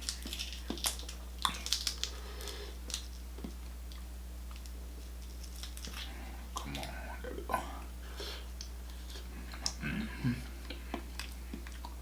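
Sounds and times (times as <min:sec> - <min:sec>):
steady low hum: 0:00.0 - 0:12.0
wet mouth eating sounds: 0:08.6 - 0:12.0.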